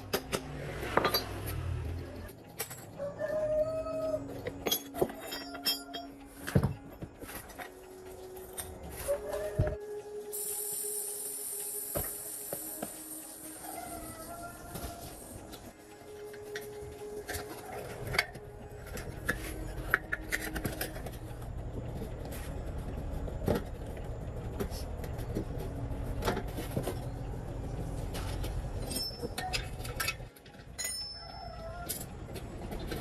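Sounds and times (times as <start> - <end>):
metal clinks and knocks: 4.4 - 7.8, 28.0 - 33.0
low steady rumble: 18.0 - 31.2.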